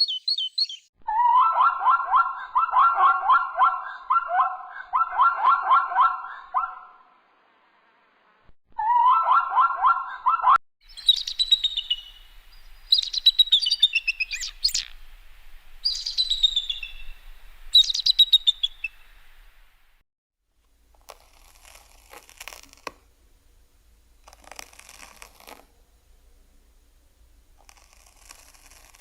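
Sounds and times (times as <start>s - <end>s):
songbird trilling: 0.0s - 0.9s, 10.8s - 15.0s, 15.8s - 19.2s.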